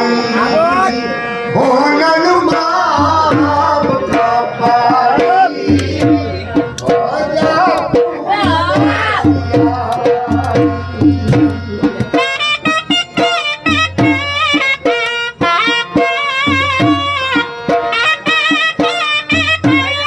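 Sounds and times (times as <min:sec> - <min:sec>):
reed pipe sliding melody: 0:00.0 - 0:03.0
steady drumming: 0:01.7 - 0:20.0.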